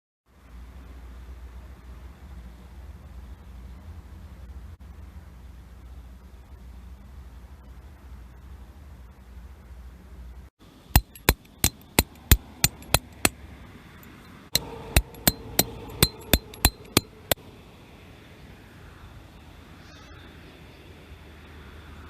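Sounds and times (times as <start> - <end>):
hammer striking metal: 11.0 - 13.4, 14.6 - 17.4.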